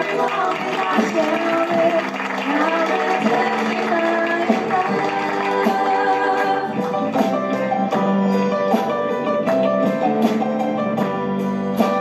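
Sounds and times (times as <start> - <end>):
gospel vocal group singing: 0.0 - 7.4
guitar: 0.0 - 12.0.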